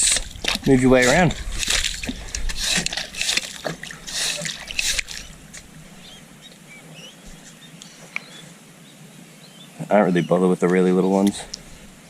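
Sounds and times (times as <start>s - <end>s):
wet sand and water splashing: 0.0s - 6.7s
water trickling and dripping: 0.0s - 7.5s.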